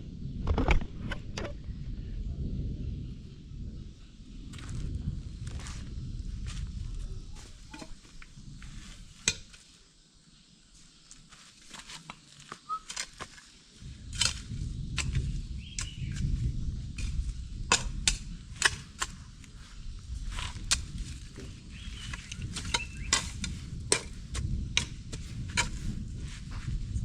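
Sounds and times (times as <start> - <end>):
low rumble: 0.0 - 8.9, 13.8 - 27.0
footsteps through dry vegetation: 4.6 - 9.2.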